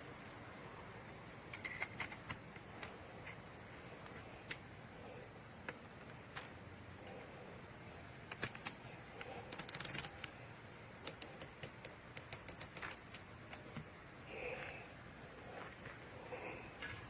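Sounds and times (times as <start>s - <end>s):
sharp mechanical clicks: 8.3s - 8.8s, 9.5s - 10.3s, 11.0s - 13.7s.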